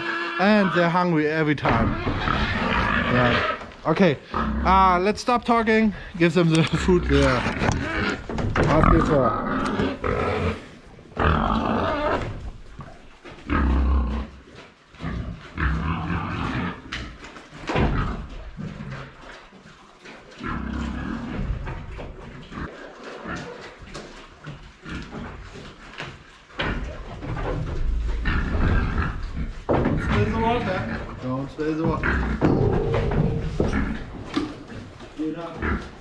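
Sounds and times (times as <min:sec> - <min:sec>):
pigs screaming: 0:00.0 - 0:05.0, 0:06.8 - 0:12.5, 0:13.5 - 0:14.4, 0:15.0 - 0:17.1.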